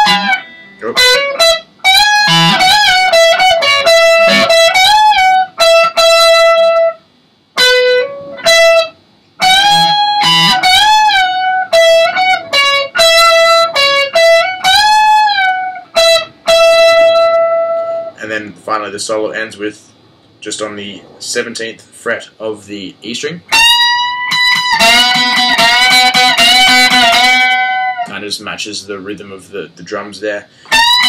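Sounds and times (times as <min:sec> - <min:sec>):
electric guitar solo with string bends: 0:00.0 - 0:07.0, 0:07.6 - 0:18.2, 0:23.5 - 0:28.1, 0:30.7 - 0:31.0.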